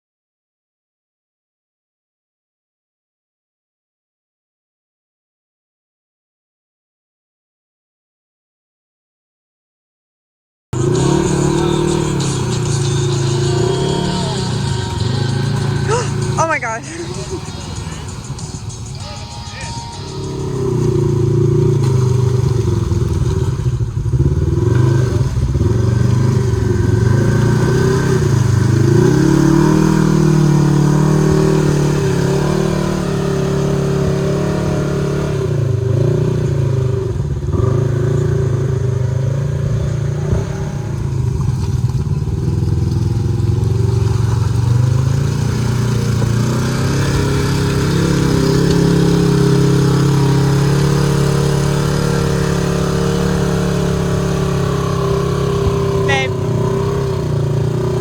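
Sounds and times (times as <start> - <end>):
engine revving: 10.8 - 58.0.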